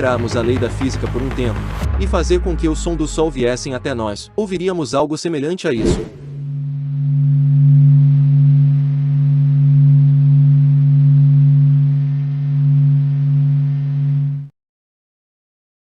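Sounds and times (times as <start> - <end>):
low electronic hum with hiss: 6.4 - 14.5.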